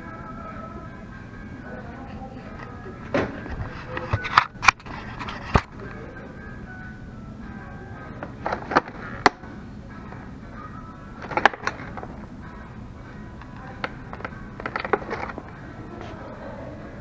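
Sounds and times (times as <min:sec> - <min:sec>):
faint background music: 0:00.0 - 0:17.0
sharp clicks and knocks: 0:03.0 - 0:05.8, 0:08.2 - 0:10.4, 0:11.2 - 0:12.3, 0:13.0 - 0:16.2.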